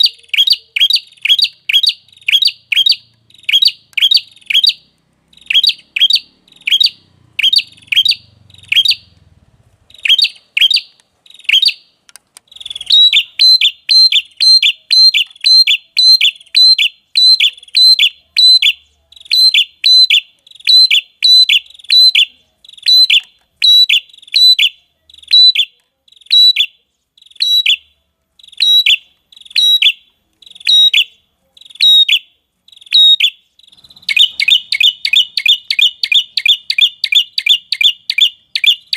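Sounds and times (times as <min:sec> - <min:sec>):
bird chipping notes: 0:00.0 - 0:09.3, 0:09.9 - 0:18.1, 0:28.4 - 0:38.9.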